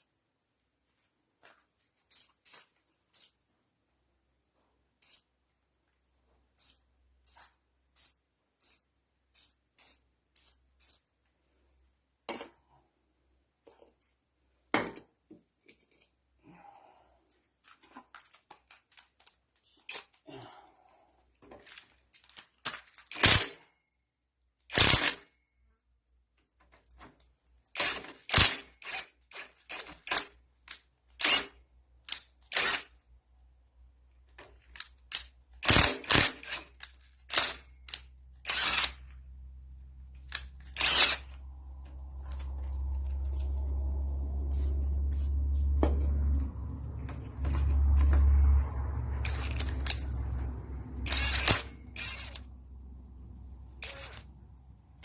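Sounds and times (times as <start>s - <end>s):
low hum with rushing noise: 41.3s - 53.9s.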